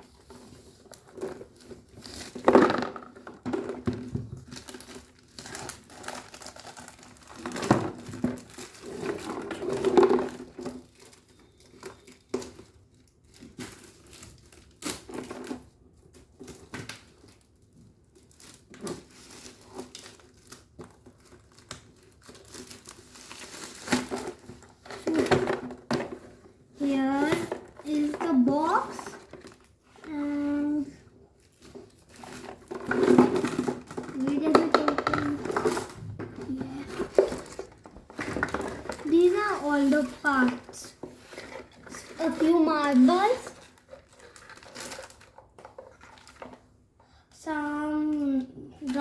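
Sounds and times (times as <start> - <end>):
packaging crinkling and tearing: 4.4 - 25.4, 31.4 - 46.6.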